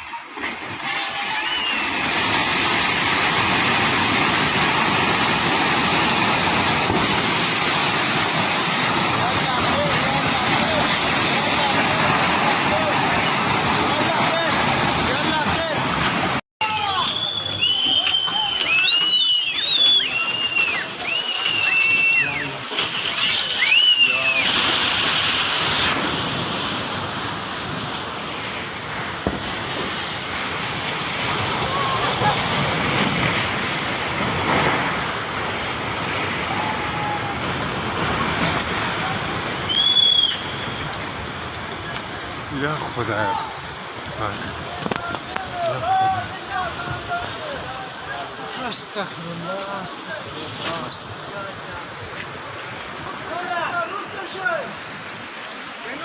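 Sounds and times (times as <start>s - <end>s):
river rushing water: 0.0s - 56.0s.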